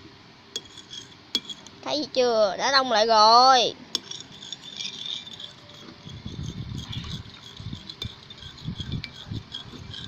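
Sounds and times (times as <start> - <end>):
slime being stirred in bowl: 4.0 - 10.0
utensil clinking against bowl: 4.0 - 10.0.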